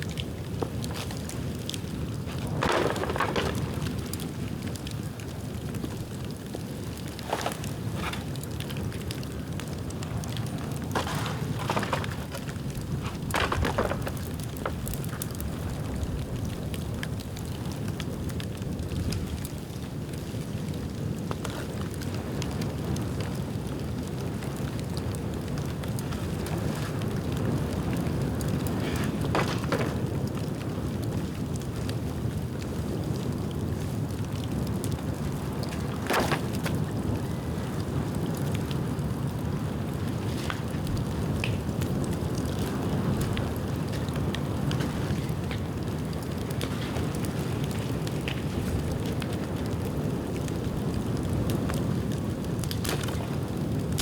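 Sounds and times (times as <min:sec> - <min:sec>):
bonfire crackling and popping: 0:00.0 - 0:54.0.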